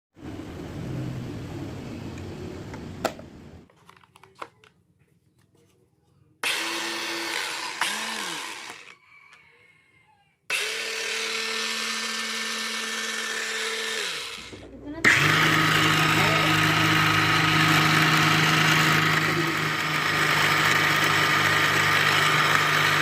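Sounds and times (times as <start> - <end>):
electric motor whirring: 6.4 - 9.0, 10.5 - 23.0.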